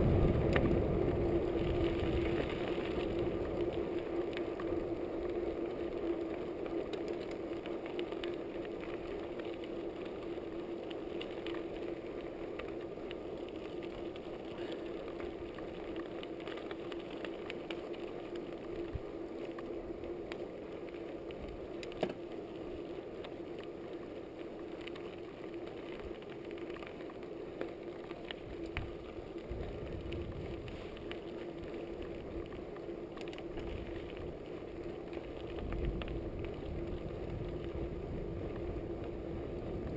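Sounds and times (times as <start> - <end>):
bike rattles and clicks: 0.0 - 18.8
bicycle tyre and drivetrain noise: 0.0 - 39.9.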